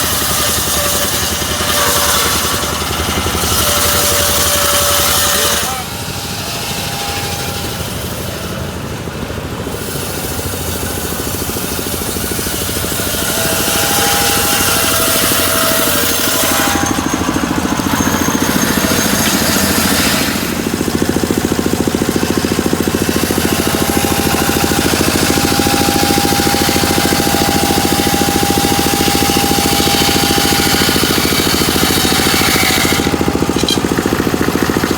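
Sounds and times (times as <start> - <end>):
model sawmill machinery rattling: 0.0 - 34.9.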